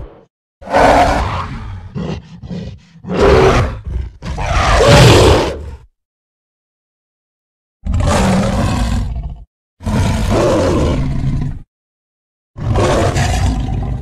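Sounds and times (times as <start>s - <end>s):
deep rough monster roars: 0.0s - 5.9s, 7.8s - 11.7s.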